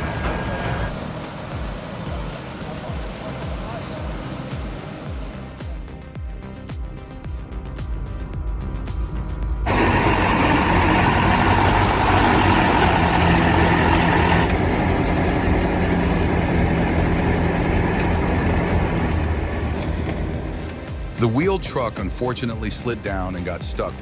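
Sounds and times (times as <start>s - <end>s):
loud rushing noise: 0.0s - 5.6s, 9.6s - 21.4s
heavy truck engine running: 0.0s - 5.9s, 6.6s - 24.0s.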